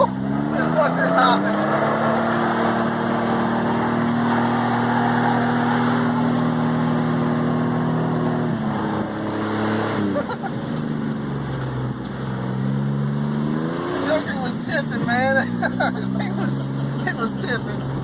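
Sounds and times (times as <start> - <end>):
road noise: 0.0 - 18.0
vehicle engine revving: 0.0 - 18.0.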